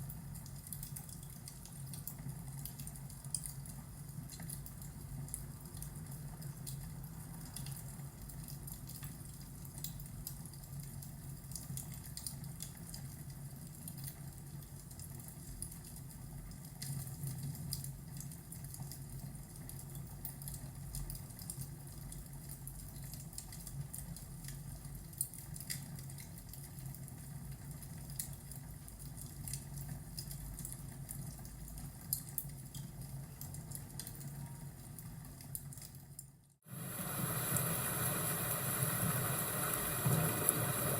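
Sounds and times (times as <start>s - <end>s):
wood fire crackling and popping: 0.1s - 40.9s
rain rushing: 36.7s - 40.9s.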